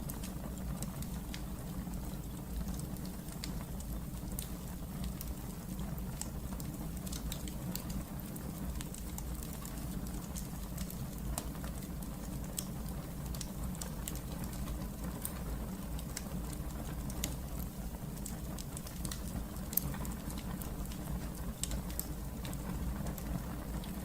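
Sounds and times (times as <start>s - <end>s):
fire crackling and popping: 0.0s - 24.0s
fire low rumble: 0.0s - 24.0s.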